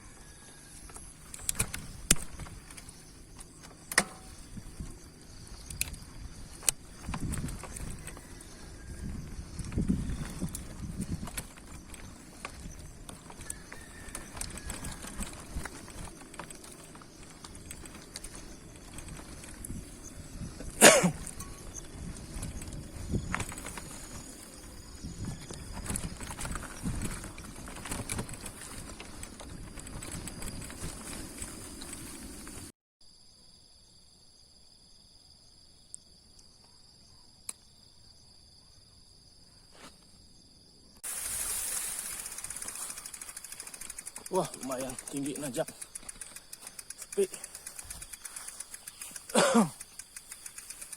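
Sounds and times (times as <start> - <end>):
insects trilling: 0.0 - 50.9
bicycle clicks and rattles: 0.7 - 32.7, 41.0 - 50.9
wind on microphone: 4.4 - 16.3, 17.6 - 32.7
faint clicks: 42.2 - 50.9.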